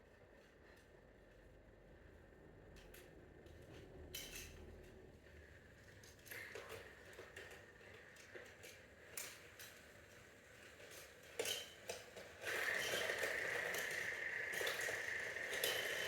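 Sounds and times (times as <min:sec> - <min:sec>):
small motor whining and rattling: 0:10.6 - 0:16.0.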